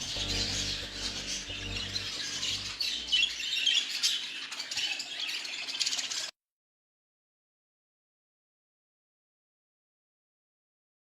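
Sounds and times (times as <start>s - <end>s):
background music: 0.0s - 3.5s
small birds chirping and squawking: 0.0s - 6.3s.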